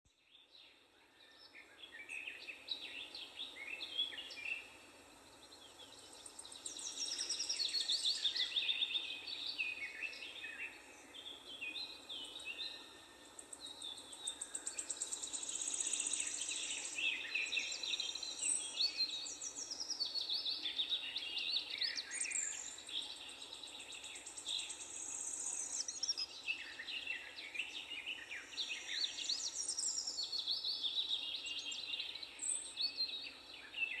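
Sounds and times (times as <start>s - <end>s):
low background hiss: 0.1s - 34.0s
songbirds singing and calling: 0.1s - 34.0s.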